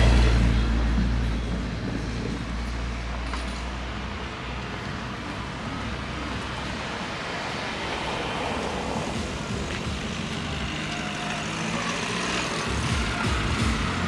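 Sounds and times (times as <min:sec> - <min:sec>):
traffic hum: 0:00.0 - 0:14.0
vehicle engine rumble: 0:00.0 - 0:14.0.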